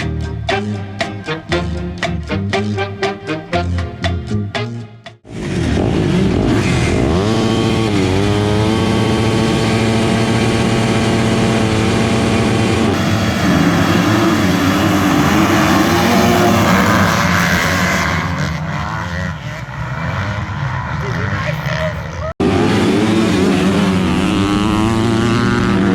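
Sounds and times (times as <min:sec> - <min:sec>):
background music: 0:00.0 - 0:05.3
motocross bike engine revving: 0:05.2 - 0:25.9.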